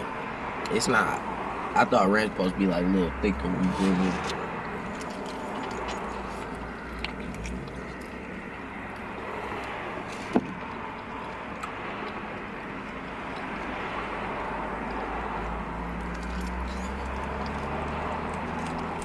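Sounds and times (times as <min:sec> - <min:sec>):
car cabin engine rumble: 0:00.9 - 0:11.4.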